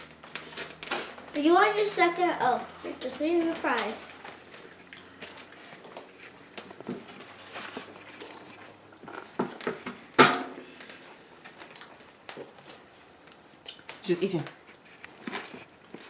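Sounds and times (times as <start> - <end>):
small clicks and rustles: 2.9 - 10.0
table eating sounds: 4.1 - 16.0.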